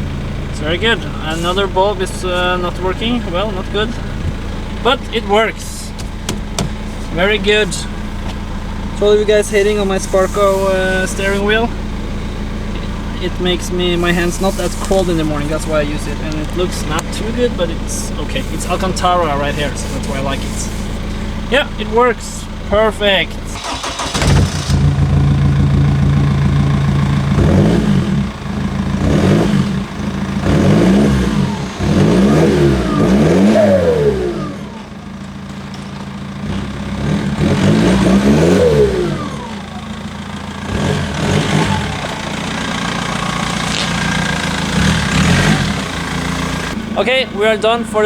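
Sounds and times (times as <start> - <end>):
diesel engine revving: 0.0 - 48.0.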